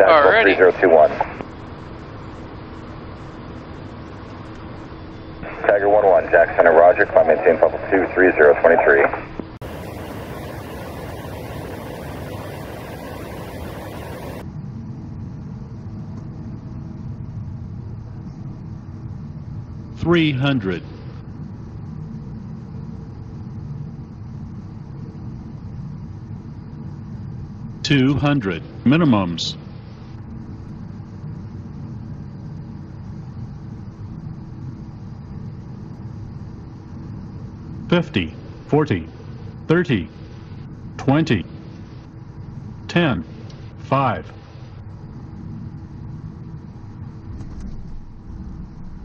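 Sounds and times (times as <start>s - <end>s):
jet engine and airflow rumble: 0.0s - 49.0s.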